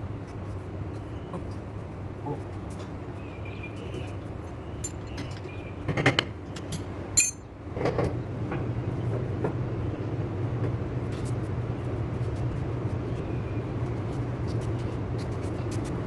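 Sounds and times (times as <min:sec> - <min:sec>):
steady low hum: 0:00.0 - 0:16.0
metal tools clinking: 0:07.2 - 0:07.4.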